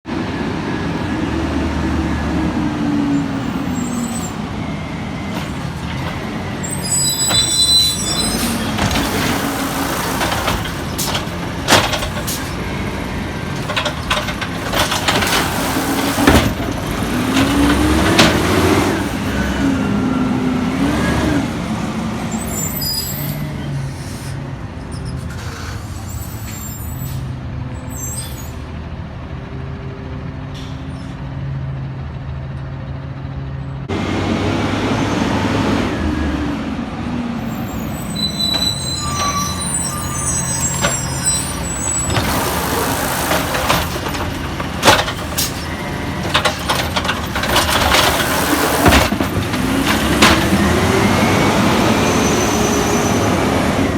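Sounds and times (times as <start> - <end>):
truck diesel engine revving: 0.8 - 22.4, 33.9 - 53.9
air brake hisses: 23.8 - 24.5, 25.2 - 27.4.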